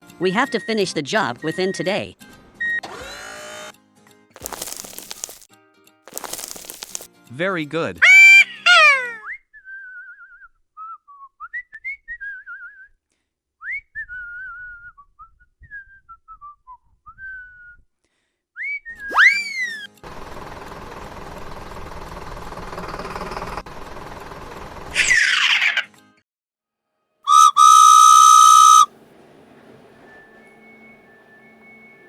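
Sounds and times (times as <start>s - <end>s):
person whistling a tune: 9.2s - 17.9s, 18.6s - 19.8s, 27.3s - 28.9s
rising cartoon whoop effects: 27.3s - 28.9s.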